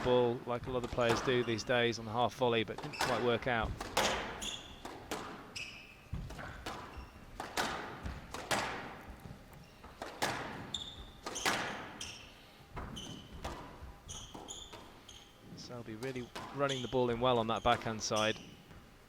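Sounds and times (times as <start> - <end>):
shoes squeaking on court: 0.7 - 1.9, 2.8 - 19.0
squash ball hit by rackets: 0.9 - 1.5, 2.8 - 5.5, 6.1 - 12.1, 12.8 - 15.0, 16.0 - 16.6.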